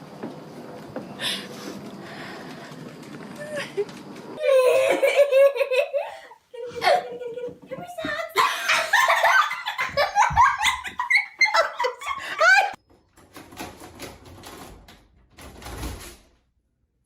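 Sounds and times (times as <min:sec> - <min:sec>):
person laughing heartily: 0:03.4 - 0:07.7, 0:08.3 - 0:12.8.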